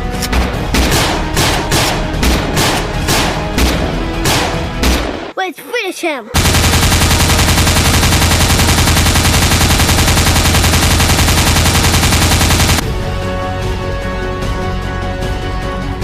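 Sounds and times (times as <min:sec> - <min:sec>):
machine gun firing: 0:06.4 - 0:12.8.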